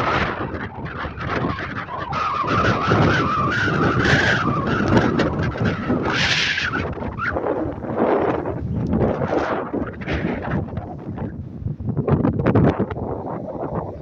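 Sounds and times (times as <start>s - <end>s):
gusty wind buffeting microphone: 0.0s - 14.0s.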